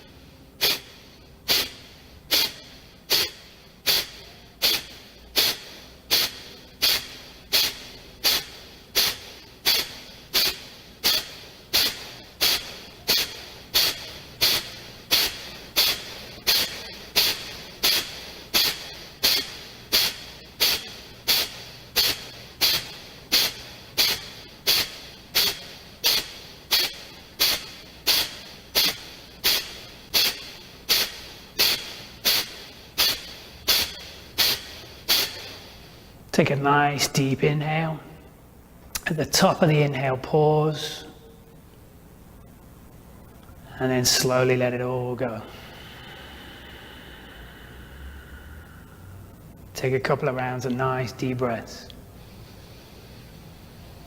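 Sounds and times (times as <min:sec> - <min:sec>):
forceful nasal exhalations: 0:00.0 - 0:36.2, 0:45.3 - 0:49.7, 0:52.2 - 0:54.0
quiet inhale: 0:00.0 - 0:36.2, 0:45.4 - 0:49.7, 0:52.1 - 0:54.0.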